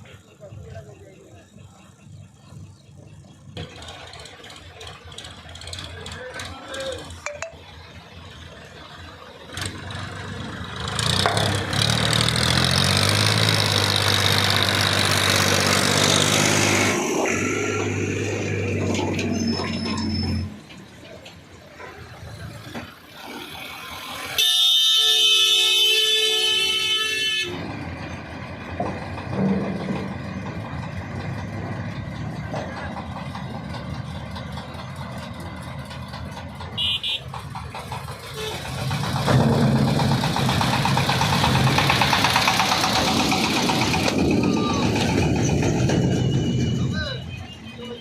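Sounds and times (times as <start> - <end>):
heavy vehicle engines running: 0.0 - 48.0
vehicle horn blaring: 24.4 - 27.6, 36.8 - 37.3, 38.3 - 38.6.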